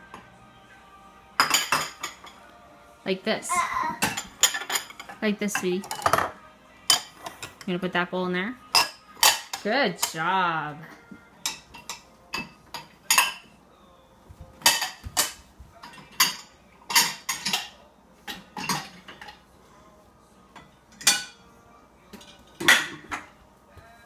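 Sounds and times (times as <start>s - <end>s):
dishes clattering: 1.4s - 2.4s, 3.9s - 7.7s, 8.7s - 10.2s, 11.4s - 13.5s, 14.5s - 19.4s, 20.5s - 21.4s, 22.1s - 23.4s.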